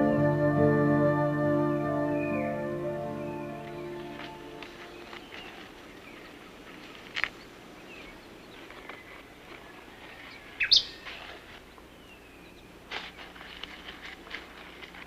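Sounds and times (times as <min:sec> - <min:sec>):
steady background hiss: 0:00.0 - 0:15.0
birds calling: 0:02.0 - 0:15.0
faint bird whistles: 0:10.6 - 0:11.0.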